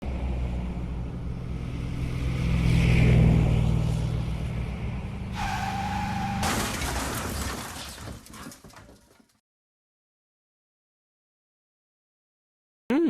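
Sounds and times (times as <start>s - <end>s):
car engine: 0.0s - 8.0s.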